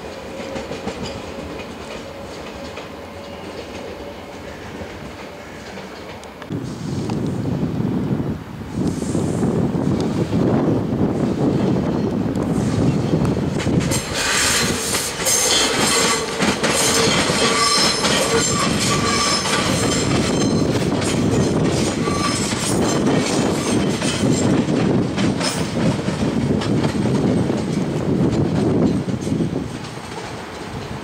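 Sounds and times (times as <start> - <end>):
train wheels clattering over rails: 0.0 - 7.2, 11.2 - 31.0
high wheel squeal: 14.0 - 24.5.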